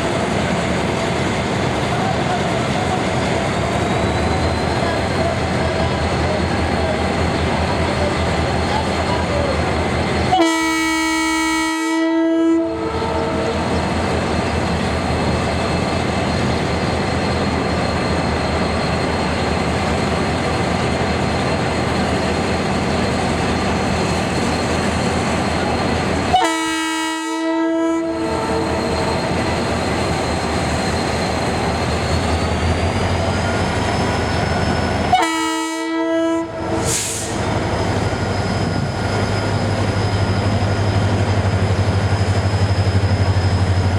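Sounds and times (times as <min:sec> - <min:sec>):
train horn blasts: 0:10.3 - 0:13.7, 0:26.3 - 0:29.1, 0:35.0 - 0:37.3.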